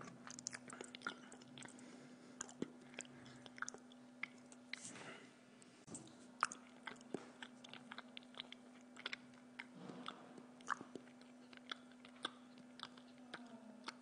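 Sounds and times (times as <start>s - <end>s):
person chewing wetly: 0.0s - 4.9s, 6.0s - 14.0s
faint hum: 0.0s - 14.0s.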